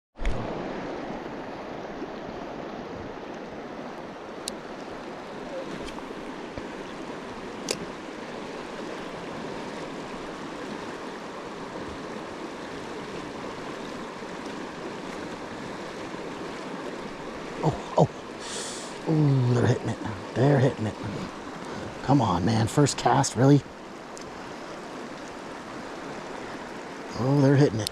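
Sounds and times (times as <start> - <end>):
water rushing: 0.2 - 27.9.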